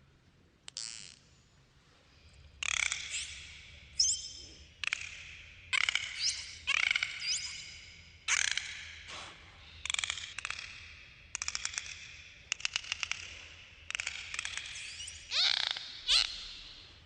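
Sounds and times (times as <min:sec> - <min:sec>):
dolphin whistles: 0:05.8 - 0:08.5, 0:14.5 - 0:16.9
dolphin clicks and buzzing: 0:09.9 - 0:16.3.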